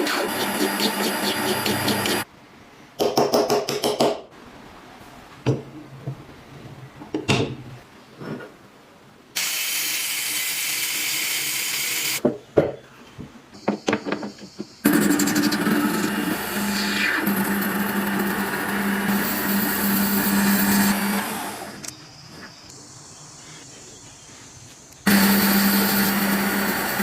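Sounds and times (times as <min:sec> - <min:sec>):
power tool running: 0:14.9 - 0:21.9, 0:25.1 - 0:27.0.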